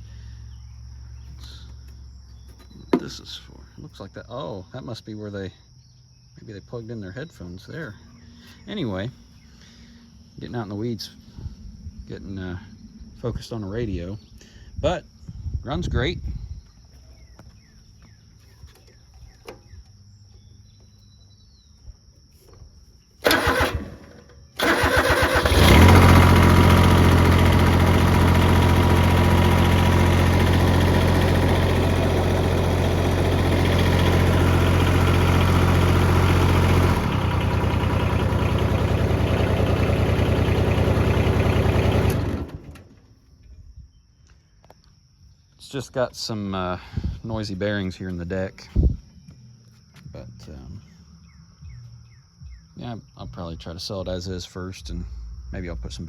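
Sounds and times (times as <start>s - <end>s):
starter cranking: 23.2s - 42.9s
diesel mower engine running: 23.2s - 43.1s.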